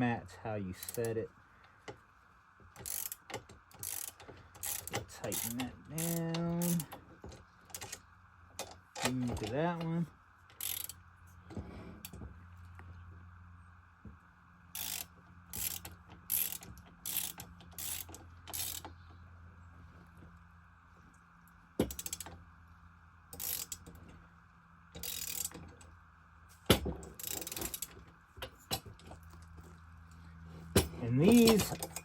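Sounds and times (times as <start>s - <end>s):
ratchet wrench clicking: 0.8s - 1.2s, 2.7s - 7.0s, 7.7s - 8.0s, 10.5s - 11.0s, 14.7s - 19.0s, 21.8s - 22.3s, 23.3s - 24.0s, 25.0s - 25.7s, 26.7s - 28.0s, 30.8s - 32.0s.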